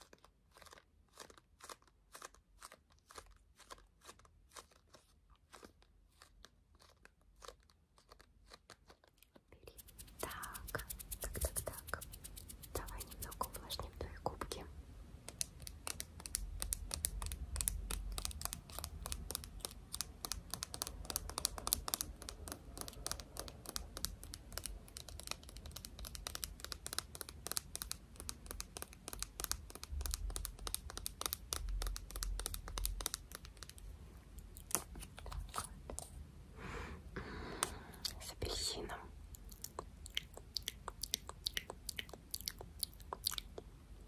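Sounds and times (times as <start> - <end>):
hands rubbing at microphone: 9.8 - 13.6.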